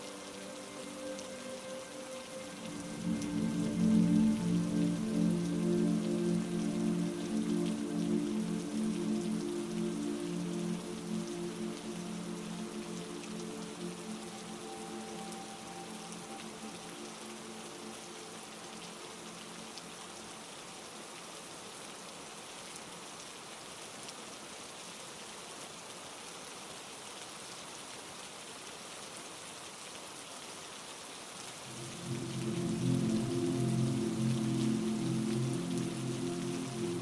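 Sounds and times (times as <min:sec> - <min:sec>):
low synth chord: 0:00.0 - 0:17.8, 0:31.7 - 0:37.0
heavy rain falling: 0:00.0 - 0:37.0.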